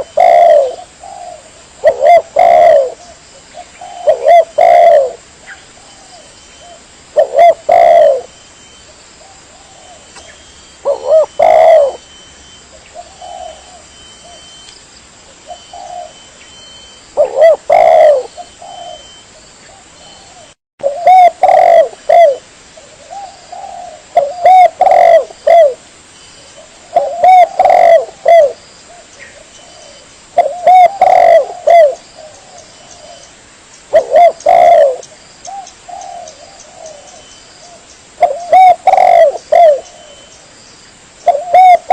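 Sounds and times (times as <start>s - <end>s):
dove cooing: 0.0s - 14.6s, 15.3s - 25.8s, 26.4s - 33.3s, 33.9s - 40.4s, 41.2s - 41.9s.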